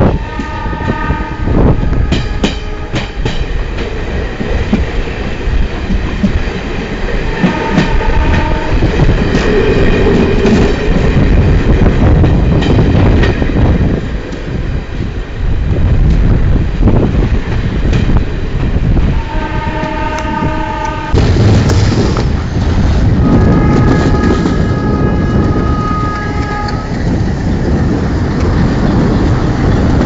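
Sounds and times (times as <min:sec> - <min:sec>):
train horn: 0:00.0 - 0:03.3, 0:07.3 - 0:09.0, 0:19.0 - 0:21.3, 0:23.1 - 0:27.0
train rumbling: 0:00.0 - 0:30.0.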